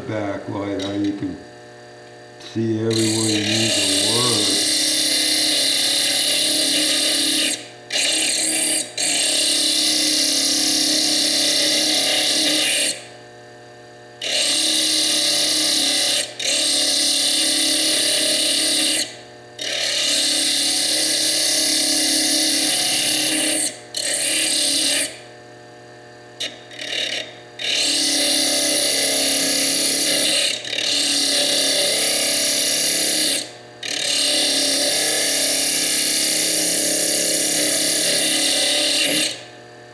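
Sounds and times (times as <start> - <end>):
grinding disc scraping stone: 0.0 - 1.5, 2.4 - 13.1, 14.2 - 25.2, 26.4 - 39.5
lathe motor hum: 0.0 - 13.1, 14.3 - 19.0, 26.7 - 39.8.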